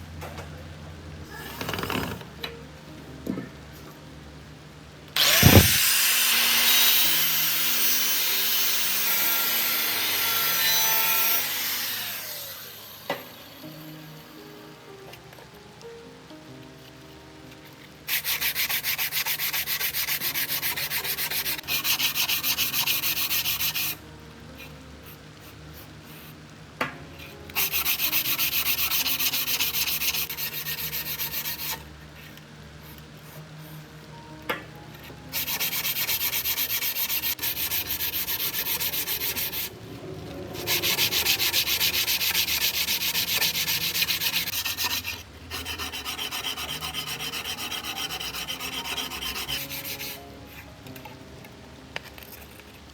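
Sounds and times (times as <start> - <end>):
hand sanding metal: 5.2 - 5.9, 18.1 - 24.0, 27.6 - 31.8, 35.3 - 39.7, 40.6 - 50.2.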